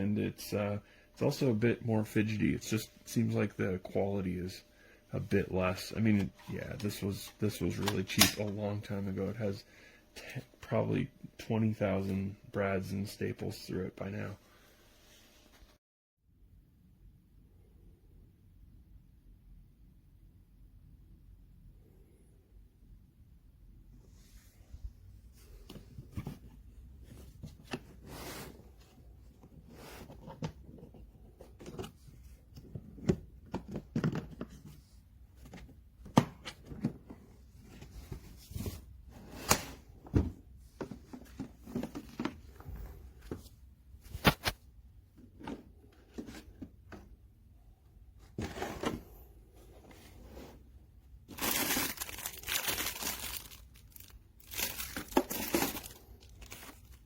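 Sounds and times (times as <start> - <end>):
hard objects being handled: 25.2 - 47.2, 48.1 - 57.0.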